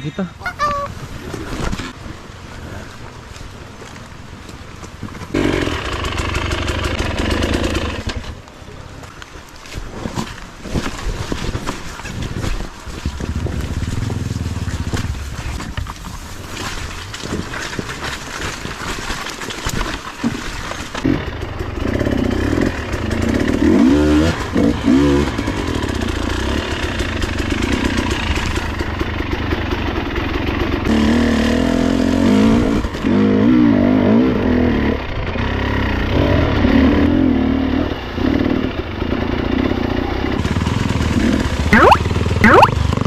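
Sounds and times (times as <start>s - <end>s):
dirt bike engine revving: 5.3s - 8.2s, 30.8s - 43.0s
bike clattering over rough ground: 9.0s - 22.1s.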